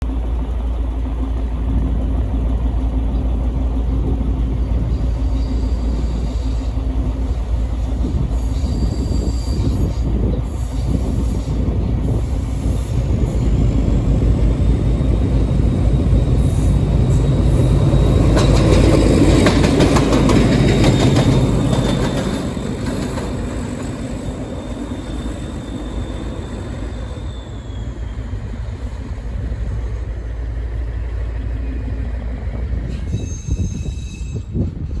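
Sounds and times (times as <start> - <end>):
diesel locomotive running past: 0.0 - 35.0
thin wheel squeal: 4.9 - 7.2, 7.8 - 13.5, 20.8 - 28.5, 32.9 - 34.6.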